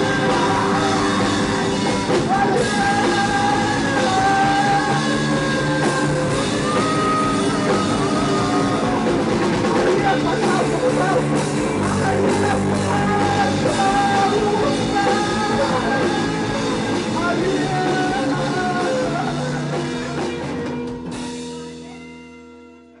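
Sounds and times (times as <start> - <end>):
drums and cymbals: 0.0 - 22.1
live psychedelic rock band: 0.0 - 23.0
held guitar chord ringing: 21.1 - 23.0.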